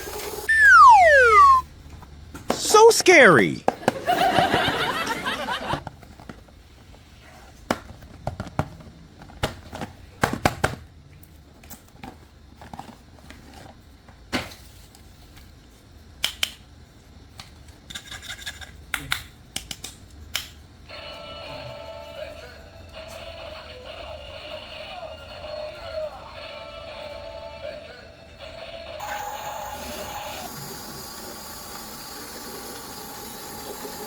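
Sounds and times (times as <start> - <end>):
electronic tune: 0.5 - 1.6.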